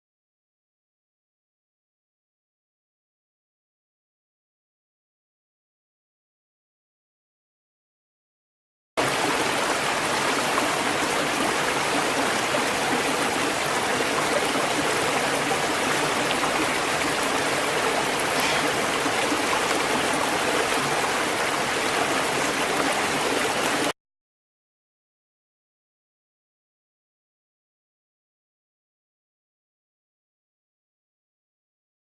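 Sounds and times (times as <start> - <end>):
running water: 9.0 - 23.9.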